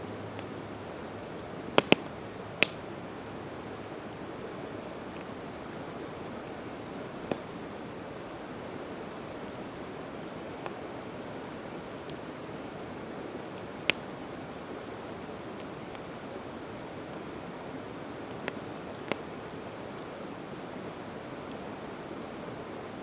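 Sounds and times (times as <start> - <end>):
campfire crackling: 1.2 - 12.2
fire pops: 1.8 - 2.8
short high chirps: 4.4 - 11.3.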